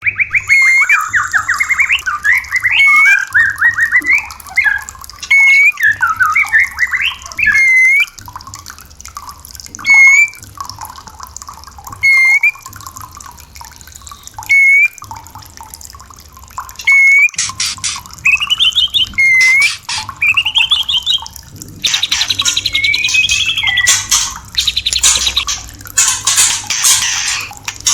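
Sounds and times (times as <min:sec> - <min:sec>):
songbird trills and whistles: 0:00.0 - 0:08.1, 0:12.0 - 0:12.6, 0:14.0 - 0:15.0, 0:16.8 - 0:27.9.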